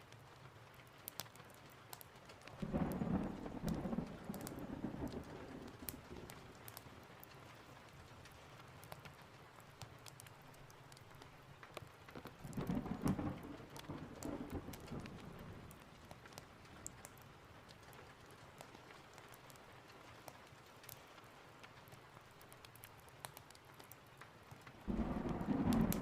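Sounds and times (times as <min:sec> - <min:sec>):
steady rain: 0:00.0 - 0:26.0
rolling thunder: 0:02.6 - 0:06.6, 0:12.4 - 0:15.8, 0:24.9 - 0:26.0.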